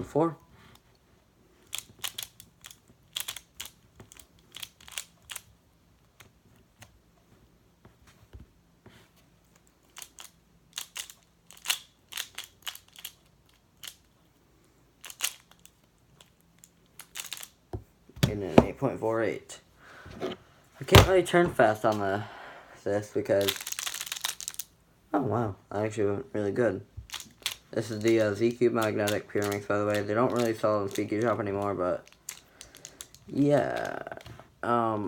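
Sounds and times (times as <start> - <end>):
plastic puzzle clicking: 1.6 - 5.5, 9.9 - 14.1, 15.0 - 17.6, 27.1 - 28.2, 28.8 - 31.4, 32.0 - 33.9.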